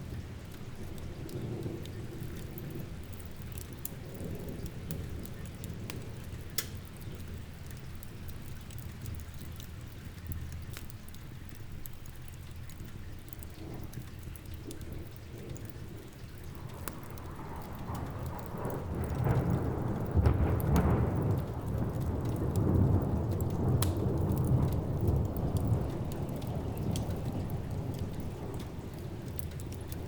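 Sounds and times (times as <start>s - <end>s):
steady rain: 0.0s - 30.0s
sharp crackles: 0.1s - 30.0s
thunder rumbling: 13.6s - 30.0s.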